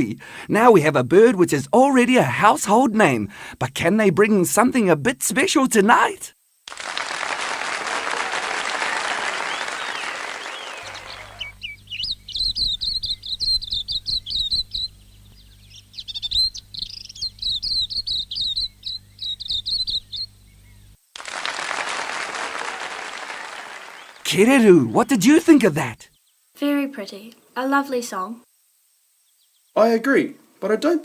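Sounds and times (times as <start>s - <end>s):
applause: 6.7s - 11.6s, 21.2s - 25.0s
songbird singing: 8.2s - 30.5s.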